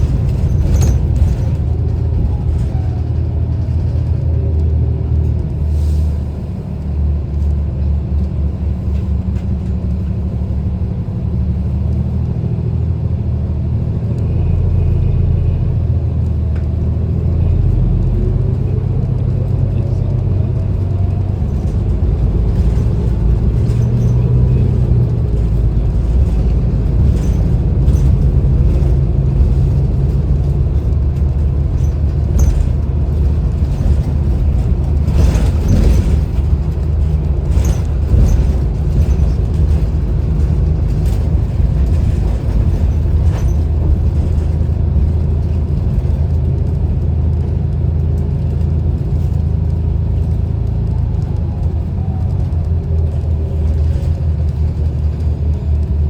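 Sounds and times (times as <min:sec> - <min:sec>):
rattles and knocks: 0:00.0 - 0:05.5, 0:17.7 - 0:56.0
bus engine and road rumble: 0:00.0 - 0:56.0.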